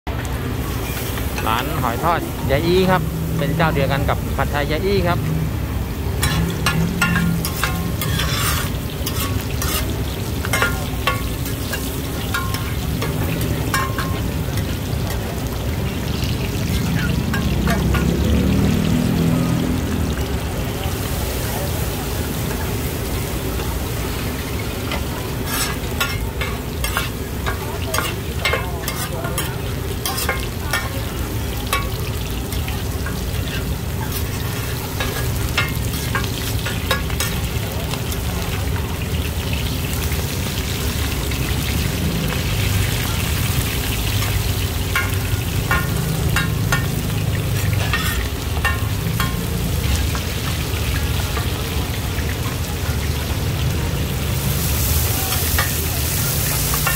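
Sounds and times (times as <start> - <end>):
batter frying in hot oil: 0.1 - 56.9
spatula scraping pan: 6.1 - 15.2, 24.4 - 37.6, 44.2 - 50.4.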